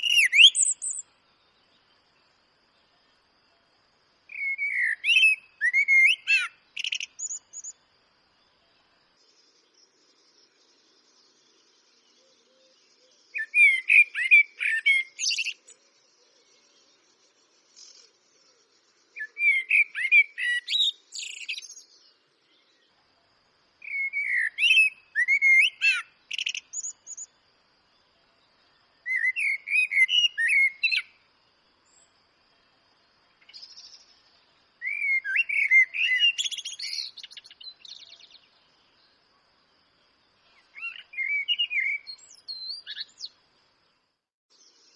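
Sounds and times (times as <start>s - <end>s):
blackbird singing: 0.0s - 2.0s, 4.2s - 7.8s, 8.4s - 23.0s, 23.8s - 27.4s, 28.0s - 31.2s, 33.3s - 39.2s, 40.4s - 43.4s.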